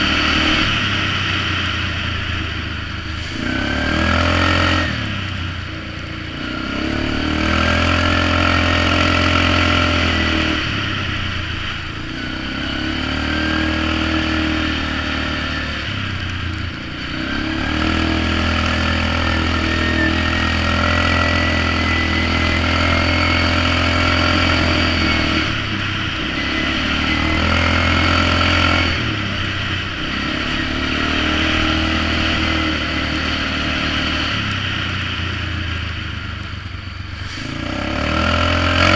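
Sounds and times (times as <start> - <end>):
atv engine revving: 0.0 - 38.9
thin whine climbing in pitch: 17.3 - 29.4.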